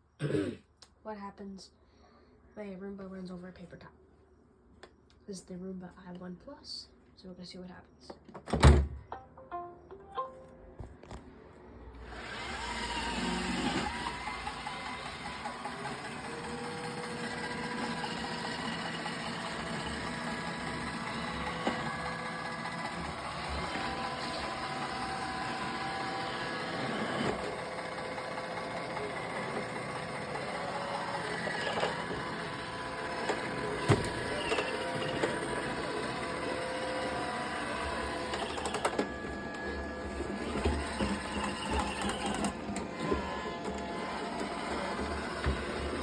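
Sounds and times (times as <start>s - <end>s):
robot vacuum motor whirring: 12.0s - 46.0s.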